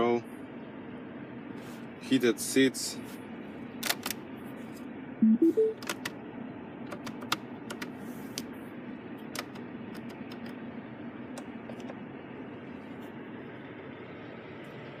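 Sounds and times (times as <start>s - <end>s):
rising electronic chime: 5.2s - 5.8s.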